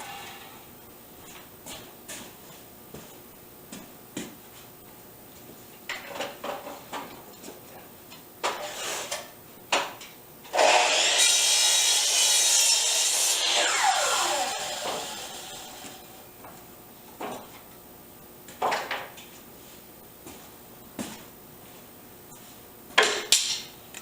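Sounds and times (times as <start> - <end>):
power saw cutting wood: 0.0 - 0.6, 10.5 - 16.3.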